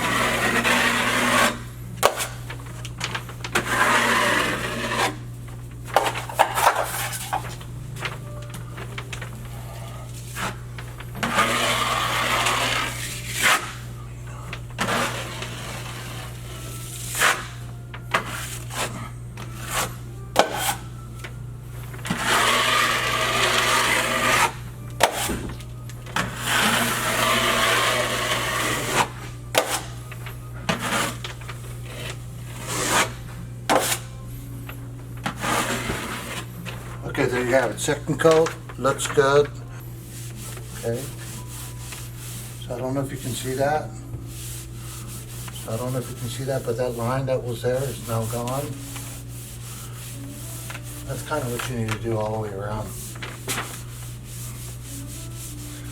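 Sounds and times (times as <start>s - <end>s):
drywall knife scraping compound: 0.0s - 2.4s, 3.6s - 5.2s, 11.2s - 13.8s, 14.8s - 17.6s, 18.2s - 20.9s, 22.1s - 25.5s, 26.2s - 29.9s, 30.7s - 31.2s, 31.9s - 34.1s, 35.2s - 36.5s, 44.7s - 51.6s
steady low hum: 0.0s - 55.9s.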